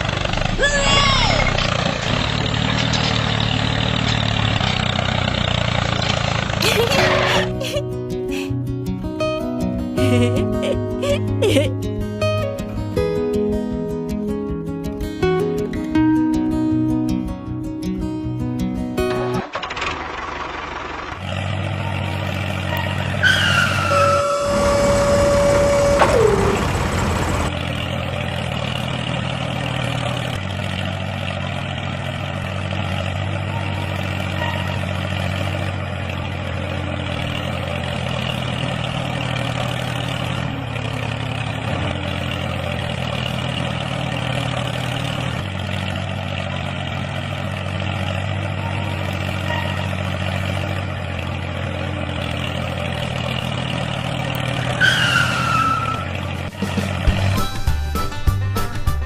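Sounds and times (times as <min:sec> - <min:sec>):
small engine running: 0:00.0 - 0:08.5, 0:19.4 - 0:57.6.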